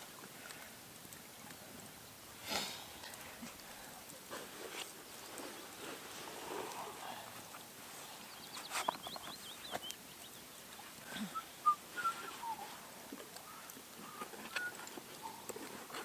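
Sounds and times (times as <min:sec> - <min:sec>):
bird chirps: 0:08.0 - 0:10.6
small bird singing: 0:08.0 - 0:12.8.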